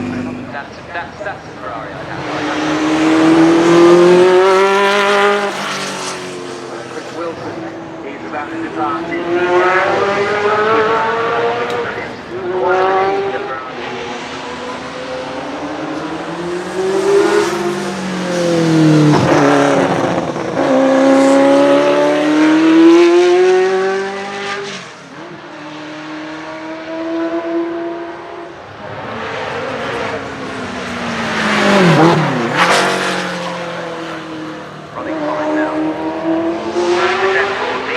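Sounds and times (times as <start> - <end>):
sports car accelerating hard: 0.0 - 37.9.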